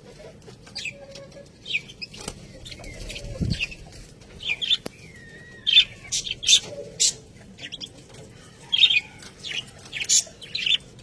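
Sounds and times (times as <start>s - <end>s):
budgerigars chirping: 1.6s - 8.0s, 8.7s - 11.0s.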